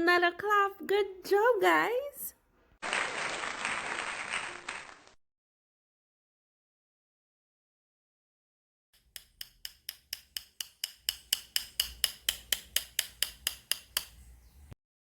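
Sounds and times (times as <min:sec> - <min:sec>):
bamboo sticks clicking: 0:09.0 - 0:14.2.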